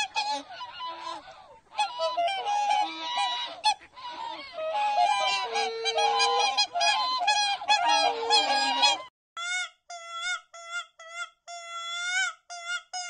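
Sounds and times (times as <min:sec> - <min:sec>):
animal giving high-pitched calls: 0:00.0 - 0:09.0
flock of farm birds calling: 0:00.0 - 0:09.1.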